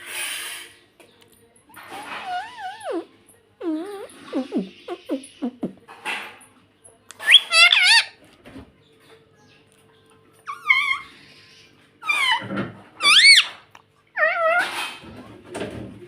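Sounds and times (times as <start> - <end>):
parakeet calling: 2.0 - 3.0, 3.6 - 5.7, 7.2 - 8.2, 10.5 - 12.4, 13.0 - 13.6.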